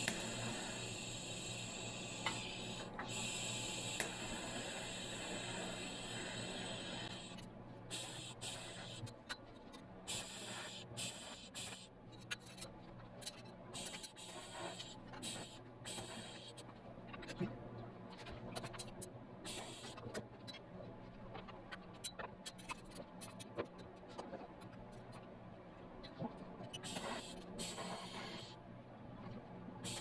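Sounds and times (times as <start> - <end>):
welding arc hissing: 0.0 - 9.0.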